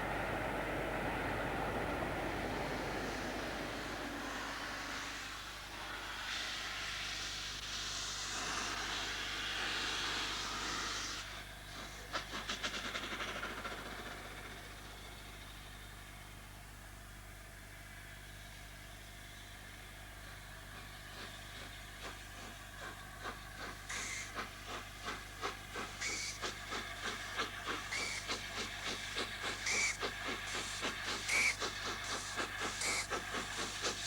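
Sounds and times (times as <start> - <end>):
train rushing hiss: 0.0 - 16.4, 18.0 - 34.0
train rumble: 0.0 - 34.0
train wheels clacking: 11.6 - 15.8, 20.2 - 34.0.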